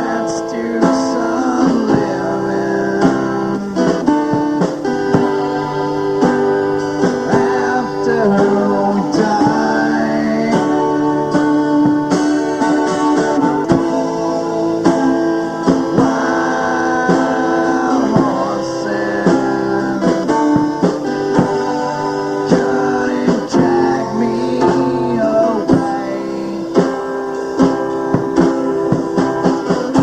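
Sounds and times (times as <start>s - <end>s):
guitar strummed and picked: 0.0s - 30.0s.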